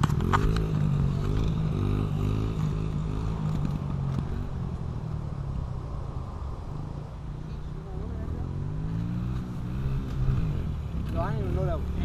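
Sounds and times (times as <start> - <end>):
dirt bike engine revving: 0.0 - 4.5, 8.4 - 12.0.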